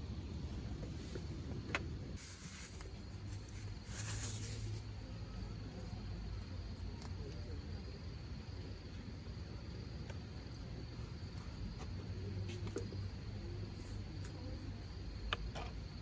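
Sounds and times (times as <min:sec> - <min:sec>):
short bursts of hiss: 0:02.2 - 0:04.9.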